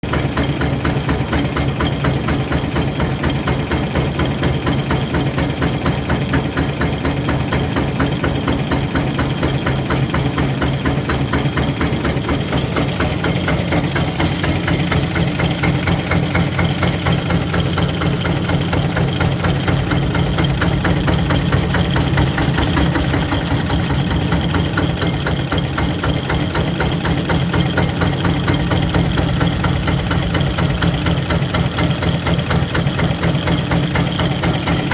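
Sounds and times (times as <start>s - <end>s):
diesel engine running: 12.9s - 34.9s.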